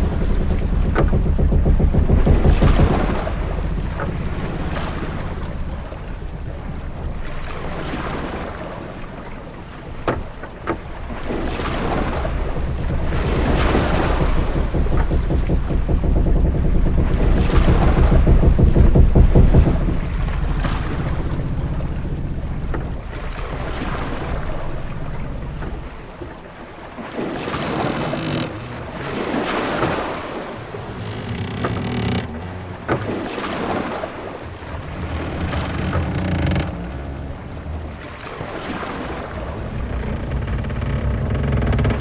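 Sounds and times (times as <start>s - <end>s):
short sharp knocks: 0.0s - 8.4s, 10.0s - 26.1s, 34.5s - 42.0s
low rumble of wind: 0.0s - 42.0s
waves washing against wooden hull: 0.0s - 42.0s.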